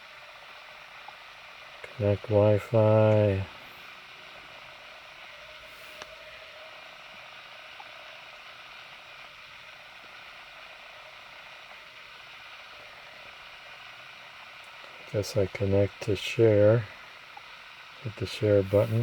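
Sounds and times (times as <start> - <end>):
steady hiss: 0.0 - 19.0
faint click: 6.0 - 6.2.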